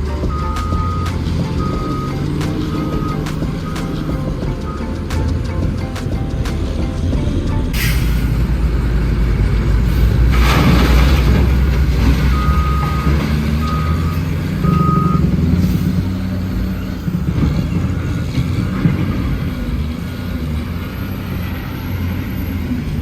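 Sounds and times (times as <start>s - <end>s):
reversing alarm beeping: 0.0s - 5.1s, 12.3s - 15.3s
diesel truck engine running: 0.0s - 23.0s
burst of hiss: 7.8s - 8.4s.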